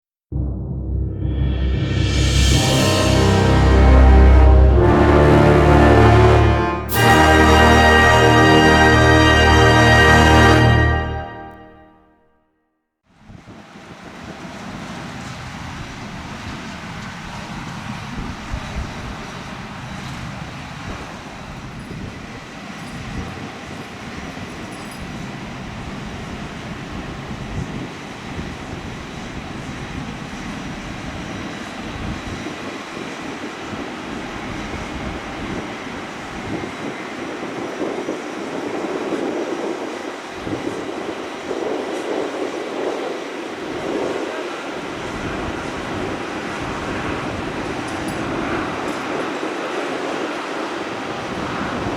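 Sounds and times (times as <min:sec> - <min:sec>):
jet engines rumbling: 0:00.3 - 0:11.6, 0:25.3 - 0:51.9.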